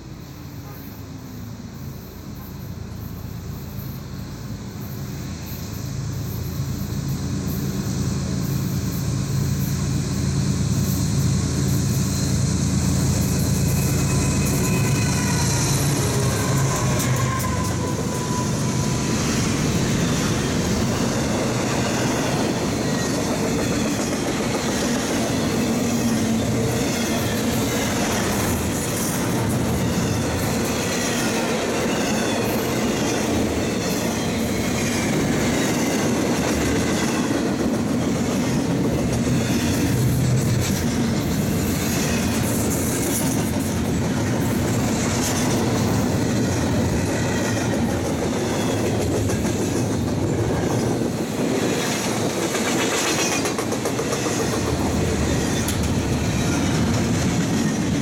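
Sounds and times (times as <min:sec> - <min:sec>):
train wheels rumbling on rail: 0:00.0 - 0:58.0
clickety-clack over rail joints: 0:12.8 - 0:58.0
faint wheel squeal: 0:13.1 - 0:20.5.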